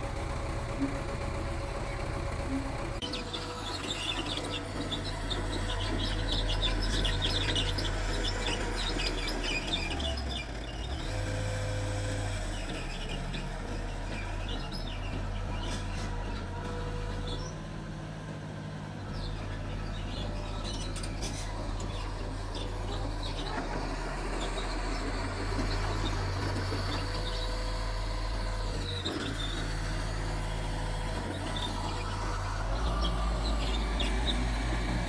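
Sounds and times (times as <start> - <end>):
bulldozer diesel engine running: 0.0 - 35.0
birds chirping: 3.0 - 11.0, 19.1 - 35.0.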